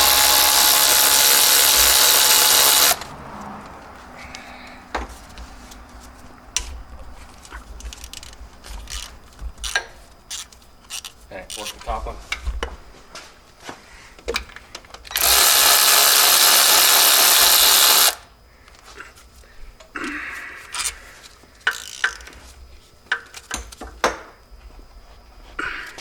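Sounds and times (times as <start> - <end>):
power tool running: 0.0 - 3.0, 15.1 - 18.3
metallic clicks of tools: 7.8 - 11.9, 21.6 - 22.4.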